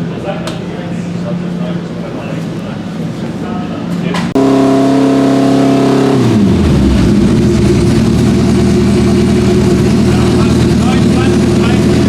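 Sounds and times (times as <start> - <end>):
race car engine running: 4.4 - 12.0.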